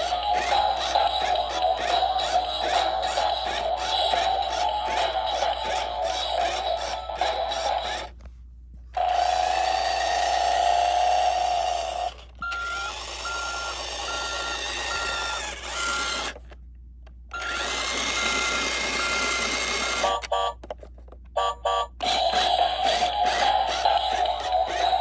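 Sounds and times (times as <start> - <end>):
toy motor whirring: 0.0 - 8.2, 9.0 - 16.6, 17.4 - 20.5, 22.0 - 25.0.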